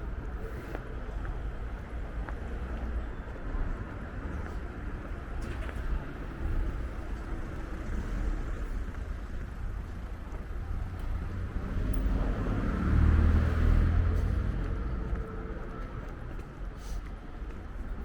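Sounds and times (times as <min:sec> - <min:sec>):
road traffic: 0:00.0 - 0:18.0
vehicle passing close: 0:11.2 - 0:15.7.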